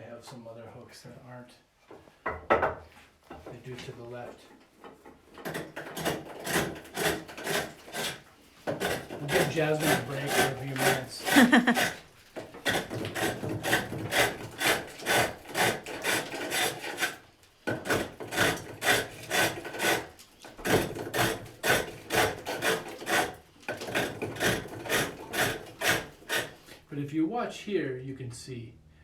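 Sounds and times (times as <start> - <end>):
hook tool shaving wood: 5.4 - 26.8.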